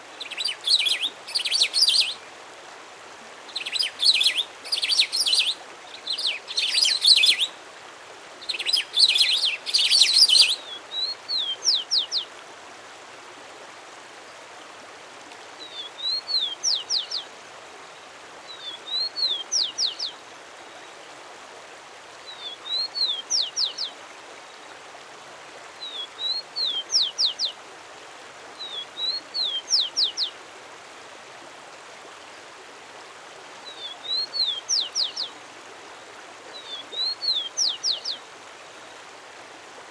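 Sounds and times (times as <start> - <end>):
songbird singing: 0.0 - 2.3, 3.4 - 7.6, 8.4 - 12.3, 15.6 - 17.3, 18.5 - 20.2, 22.3 - 24.0, 25.8 - 27.6, 28.6 - 30.4, 33.6 - 35.4, 36.5 - 39.0
steady background hiss: 0.0 - 39.9.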